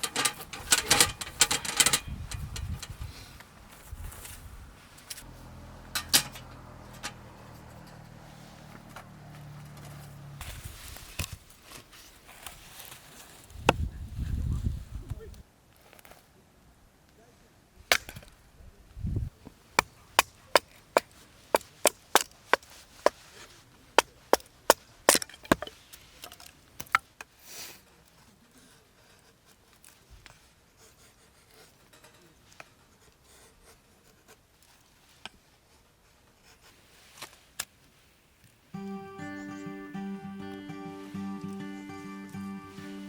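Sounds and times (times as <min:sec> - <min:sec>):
firewood chopping knocks: 0:19.8 - 0:22.7.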